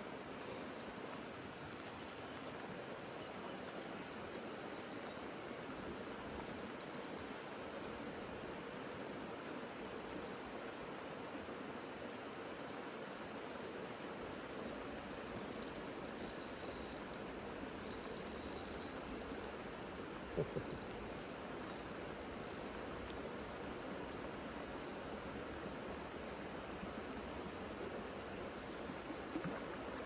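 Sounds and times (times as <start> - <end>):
fishing reel clicking: 15.4 - 17.2, 17.8 - 19.5, 20.6 - 21.0.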